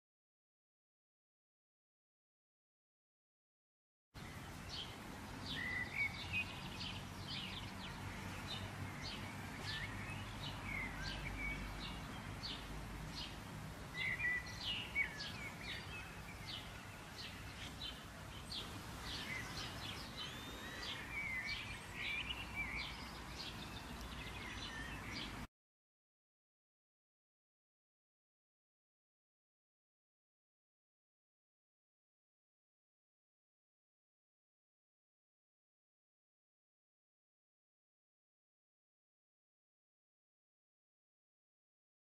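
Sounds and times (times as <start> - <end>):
songbirds chirping and singing: 4.2 - 25.5.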